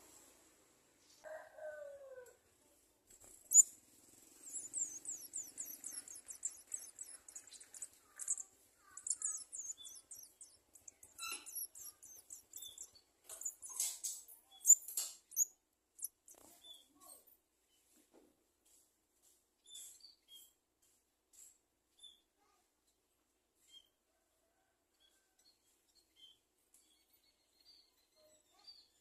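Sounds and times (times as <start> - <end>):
nestlings begging with high cheeps: 3.2 - 16.5.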